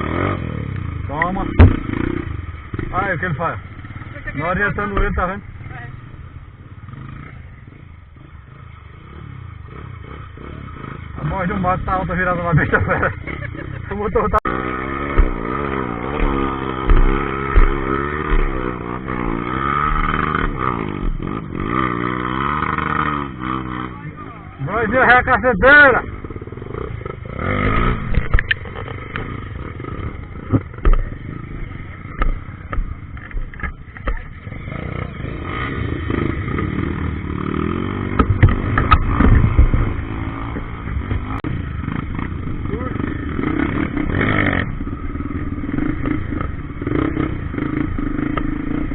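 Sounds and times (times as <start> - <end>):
motorcycle engine revving: 0.0 - 48.9
low thumps: 1.1 - 3.6, 14.3 - 23.4, 26.0 - 34.4, 38.0 - 42.6
sharp knocks: 1.5 - 2.0, 15.0 - 21.4, 38.1 - 39.9.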